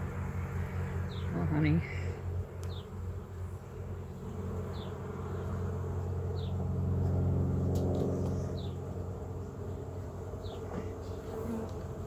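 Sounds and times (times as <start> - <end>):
bees buzzing: 9.4 - 12.0.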